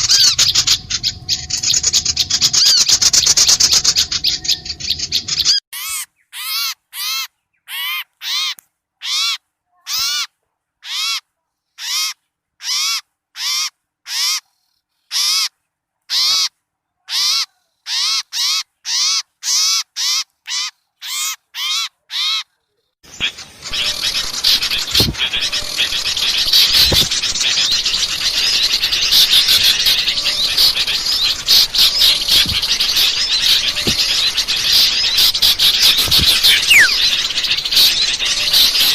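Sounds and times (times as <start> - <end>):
chatter of many small birds: 0.0 - 6.1, 23.0 - 38.9
harsh scratchy bird call: 0.0 - 11.2, 17.1 - 38.9.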